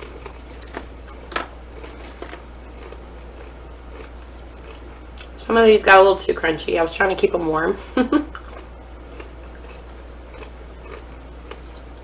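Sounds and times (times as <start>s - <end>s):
crunchy chewing of fried food: 0.0s - 5.4s, 8.3s - 12.0s.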